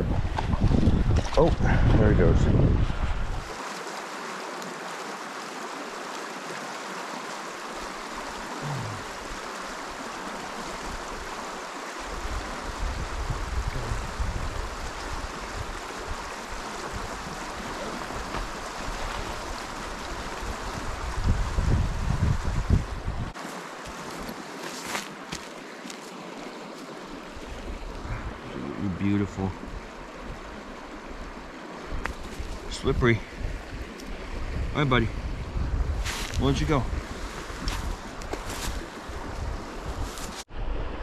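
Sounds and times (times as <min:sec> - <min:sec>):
wind rumble on microphone: 0:00.0 - 0:03.6, 0:12.0 - 0:23.4, 0:27.4 - 0:41.0
creek water running: 0:00.0 - 0:41.0.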